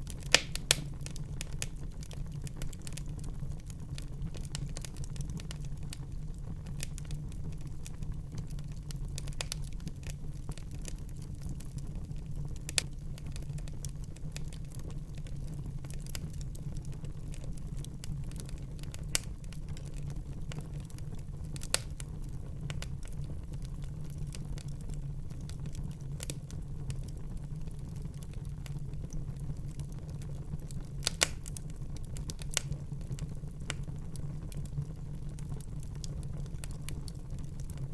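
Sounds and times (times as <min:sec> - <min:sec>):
sharp pops from fire: 0:00.0 - 0:03.2, 0:08.4 - 0:11.0, 0:21.5 - 0:23.2, 0:30.6 - 0:34.7
low rumble of flames: 0:00.0 - 0:37.9
wood fire crackling: 0:00.0 - 0:37.9.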